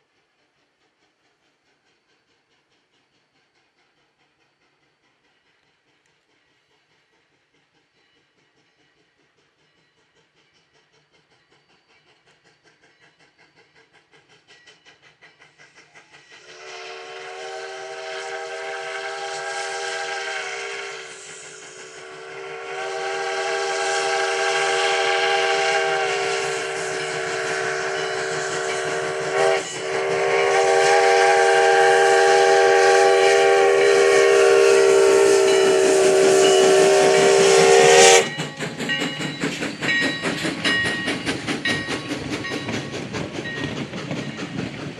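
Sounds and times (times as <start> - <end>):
steam locomotive exhaust beats: 0.0 - 44.9
train clattering past: 0.0 - 44.9
steam whistle blasts: 16.4 - 38.5.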